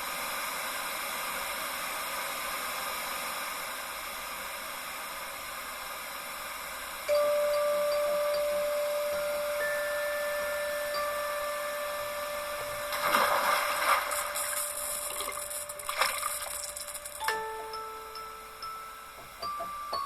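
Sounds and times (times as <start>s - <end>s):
electronic hiss: 0.0s - 20.0s
faint higher electronic tone: 7.1s - 20.0s
steady electronic tone: 7.2s - 19.5s.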